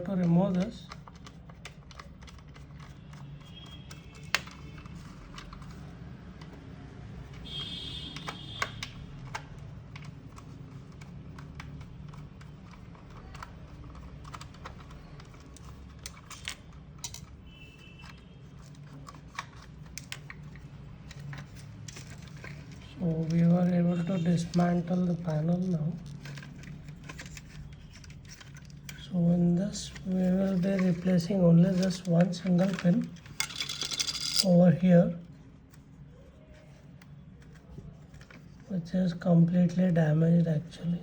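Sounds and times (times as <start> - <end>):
screwdriver and plastic parts clicking: 0.0 - 6.6, 7.2 - 17.4, 18.0 - 23.4, 24.0 - 29.1, 29.7 - 34.6.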